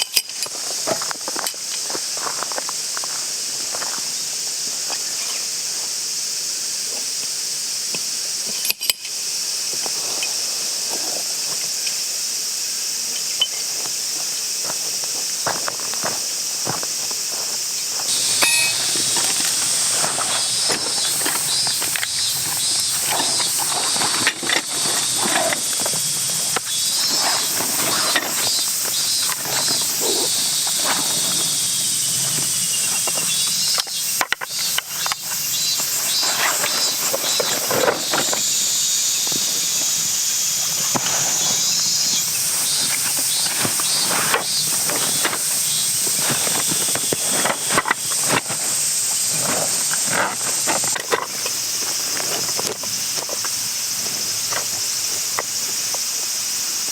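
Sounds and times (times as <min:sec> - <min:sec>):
high-pitched insect buzz: 0:01.5 - 0:56.9
chirping trills: 0:18.1 - 0:37.8.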